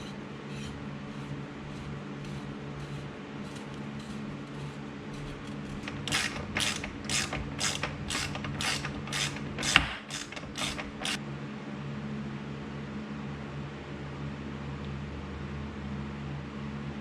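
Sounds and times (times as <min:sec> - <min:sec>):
ratchet rasping strokes: 0:00.5 - 0:11.2.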